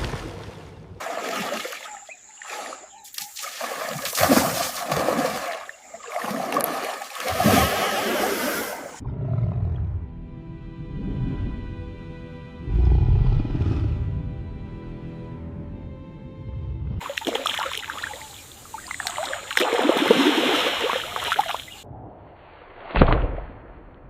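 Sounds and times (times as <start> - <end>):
heavy water splashing: 0.0 - 9.0, 17.0 - 21.8.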